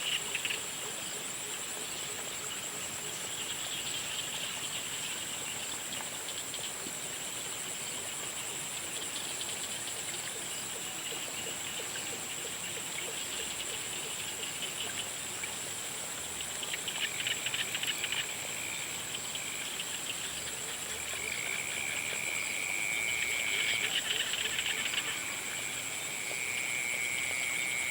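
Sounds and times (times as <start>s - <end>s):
high-pitched insect trill: 7.3s - 27.9s
pulsing frog calls: 10.8s - 27.9s.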